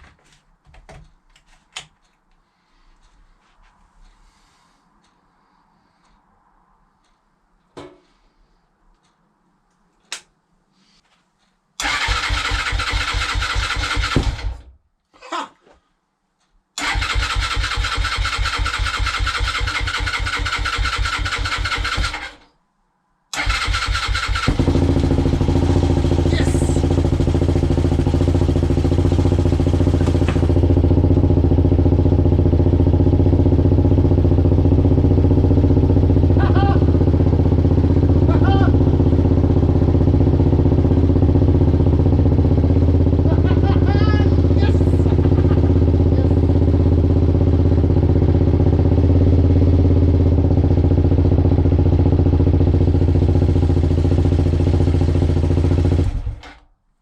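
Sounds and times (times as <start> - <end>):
electric starter cranking engine: 11.8 - 14.6, 16.8 - 22.4, 23.4 - 30.8
motorcycle engine running: 23.4 - 56.4.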